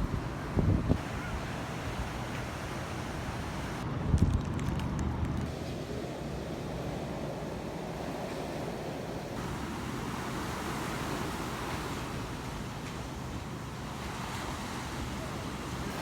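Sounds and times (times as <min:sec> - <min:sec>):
sea surf washing ashore: 0:00.0 - 0:03.8, 0:05.5 - 0:16.0
wind on microphone: 0:00.0 - 0:05.5.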